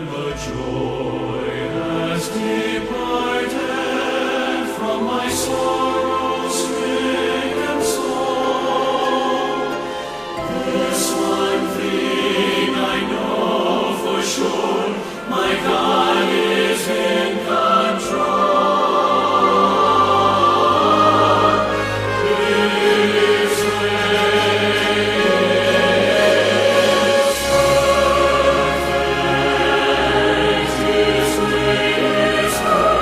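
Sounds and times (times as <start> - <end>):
choir singing held chords: 0.0 - 33.0
instrumental accompaniment: 0.0 - 33.0.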